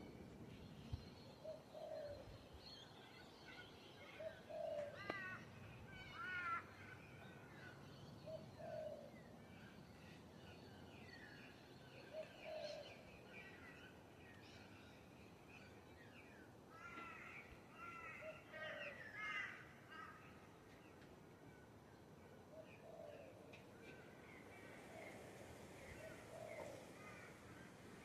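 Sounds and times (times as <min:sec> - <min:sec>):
harsh bird calls: 0:03.2 - 0:14.8.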